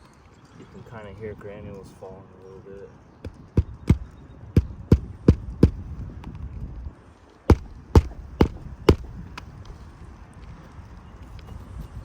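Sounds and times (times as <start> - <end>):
hammer striking roofing nails: 3.2 - 5.9, 7.5 - 9.5.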